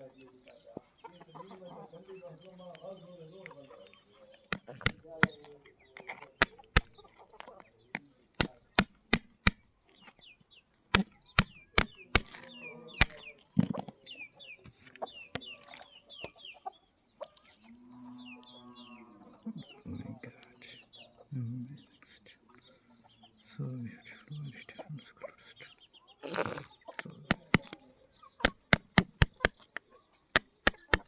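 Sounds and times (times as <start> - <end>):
sharp knocks or clicks: 4.5 - 7.0, 7.9 - 9.7, 10.9 - 14.0, 27.0 - 27.8, 28.4 - 31.0.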